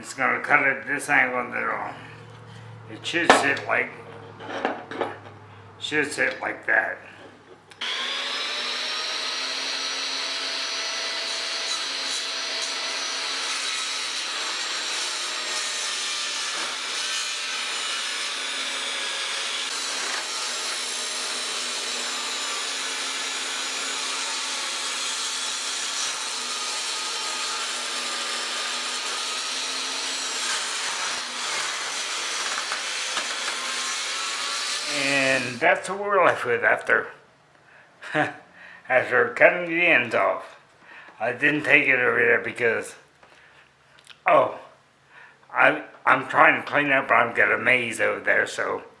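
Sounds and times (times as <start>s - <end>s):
table saw cutting wood: 7.7s - 35.9s.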